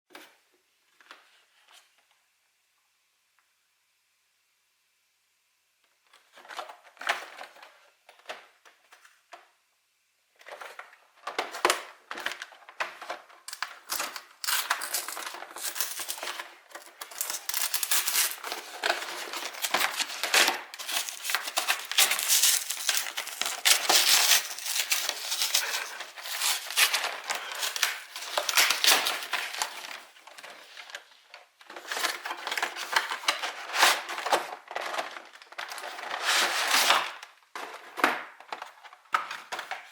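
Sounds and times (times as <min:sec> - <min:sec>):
plastic wrapping crinkling and tearing: 0:11.4 - 0:39.9.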